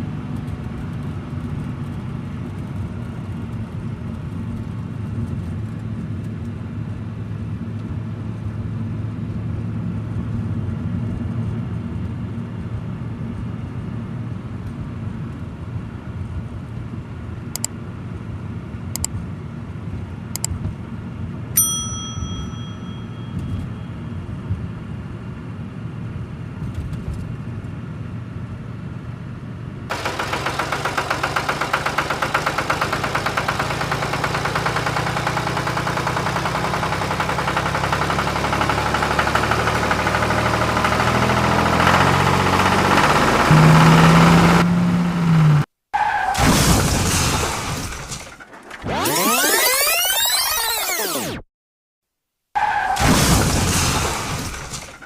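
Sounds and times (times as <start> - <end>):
engine with fast even clatter: 0.0 - 7.1, 29.9 - 45.6, 46.4 - 51.4, 53.0 - 55.0
bright ding: 21.6 - 23.6
tractor diesel engine rumbling: 29.9 - 45.6.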